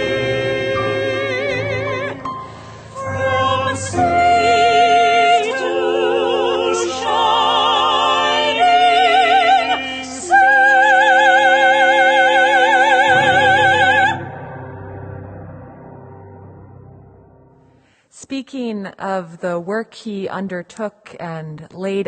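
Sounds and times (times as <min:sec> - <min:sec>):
singer breathing in: 0:02.4 - 0:03.0, 0:17.6 - 0:18.1.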